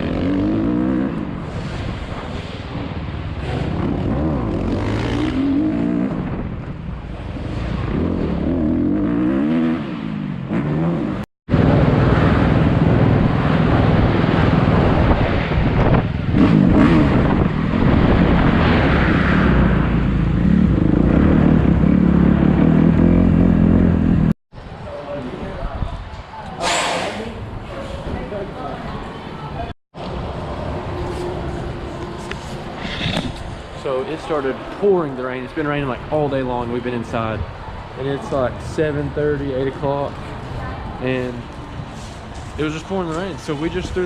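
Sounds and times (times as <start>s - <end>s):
motocross bike engine revving: 3.4s - 6.3s, 16.3s - 18.3s, 19.6s - 24.3s.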